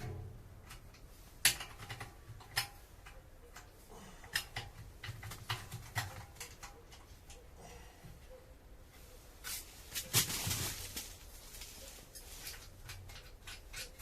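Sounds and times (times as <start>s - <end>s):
metal stove parts clicking and knocking: 0.0s - 7.5s, 12.6s - 14.0s.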